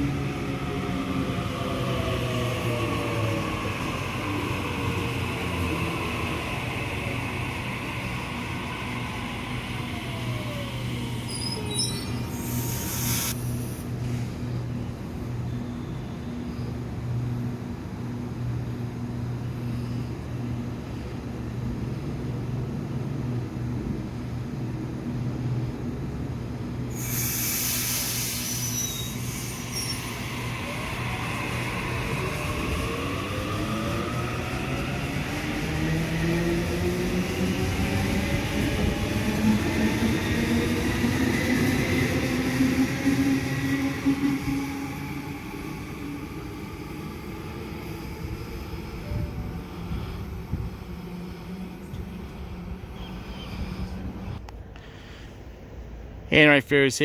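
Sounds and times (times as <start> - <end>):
electric train rumble and hum: 0.0 - 56.3
high wheel squeals: 11.2 - 13.4, 27.1 - 30.9.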